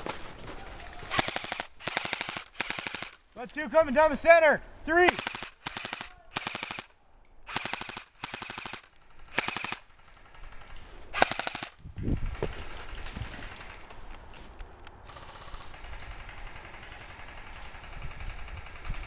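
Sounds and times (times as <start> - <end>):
airsoft guns firing bursts: 1.1 - 3.2, 5.0 - 6.9, 7.5 - 13.8.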